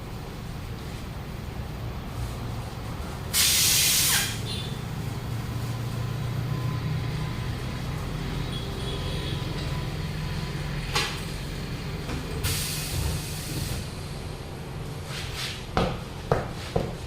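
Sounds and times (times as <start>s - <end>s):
compressed air hiss: 3.3s - 4.7s, 12.4s - 14.2s.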